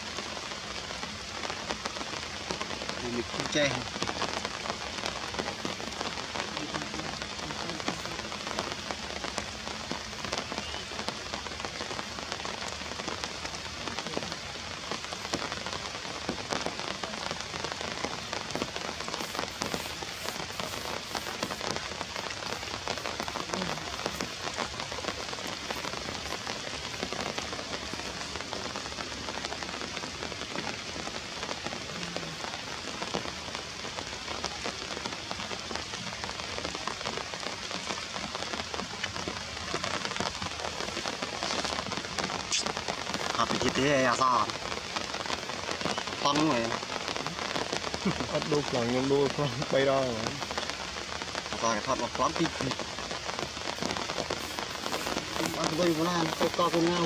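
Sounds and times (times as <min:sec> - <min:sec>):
rain pattering on surfaces: 0:00.0 - 0:57.0.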